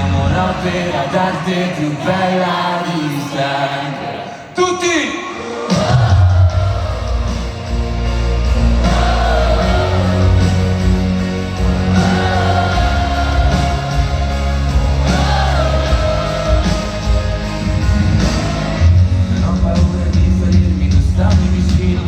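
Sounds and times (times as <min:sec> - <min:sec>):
bass: 0:00.0 - 0:01.0, 0:05.9 - 0:22.0
guitar: 0:00.0 - 0:02.0, 0:06.0 - 0:22.0
person singing: 0:11.6 - 0:19.4.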